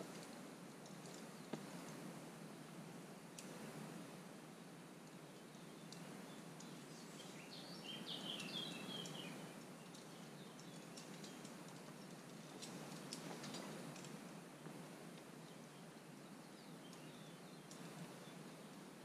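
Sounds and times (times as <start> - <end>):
outdoor background hiss: 0.0 - 19.0
faint clicks: 5.0 - 6.8, 8.4 - 14.2, 16.8 - 18.9.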